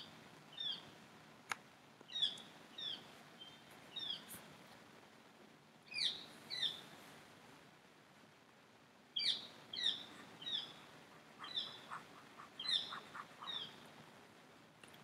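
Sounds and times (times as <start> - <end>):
bird chirping downward calls: 5.9 - 6.8, 9.2 - 10.8, 11.4 - 13.8.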